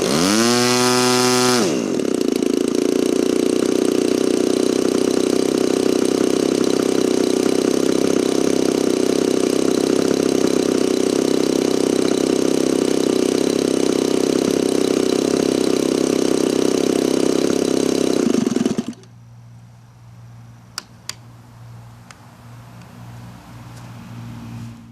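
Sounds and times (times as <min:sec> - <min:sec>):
model airplane engine running: 0:00.0 - 0:19.1
sharp clicks: 0:20.7 - 0:21.3.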